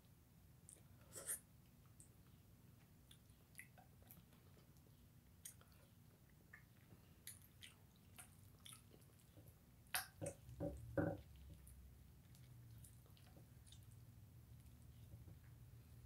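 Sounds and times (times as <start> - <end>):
person chewing: 3.1 - 10.4
mouth clicks and smacks: 9.9 - 10.7.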